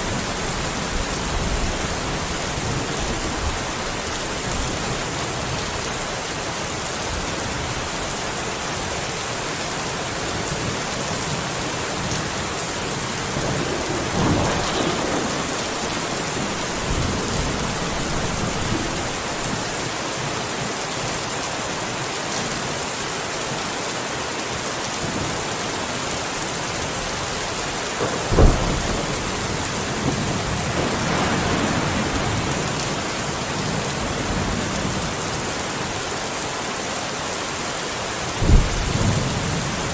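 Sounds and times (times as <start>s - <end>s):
rain falling: 0.0s - 39.9s
thunder rolling: 12.5s - 20.0s, 28.0s - 34.9s
sharp thunderclap: 13.1s - 19.8s, 28.0s - 34.6s, 38.4s - 39.6s.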